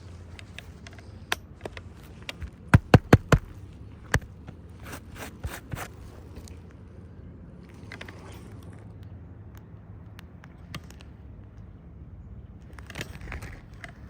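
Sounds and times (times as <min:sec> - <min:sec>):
handling clicks and scrapes: 0:00.0 - 0:06.9, 0:07.6 - 0:09.1, 0:12.6 - 0:14.0
hammer striking nail into shingle: 0:02.4 - 0:05.9.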